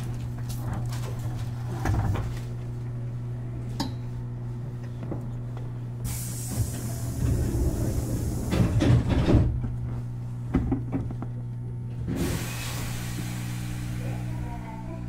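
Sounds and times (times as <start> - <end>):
train equipment hum: 0.0 - 15.0
air hiss: 6.0 - 8.8, 12.1 - 14.3.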